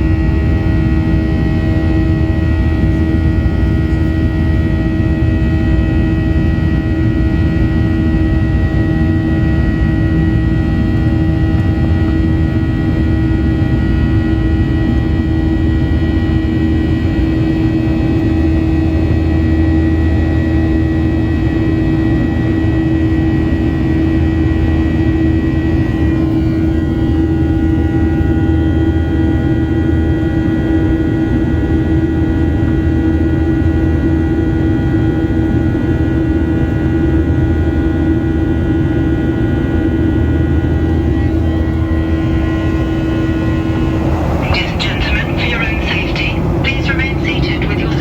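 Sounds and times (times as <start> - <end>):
engine drone: 39.8 - 48.0
steady hum: 40.6 - 48.0
airflow rush: 41.4 - 48.0.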